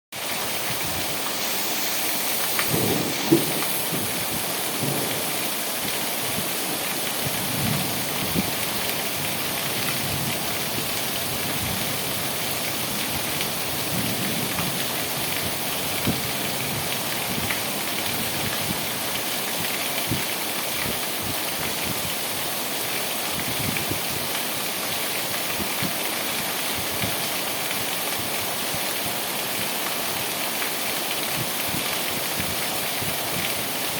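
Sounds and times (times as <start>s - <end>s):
heavy rain pattering: 0.2s - 33.9s.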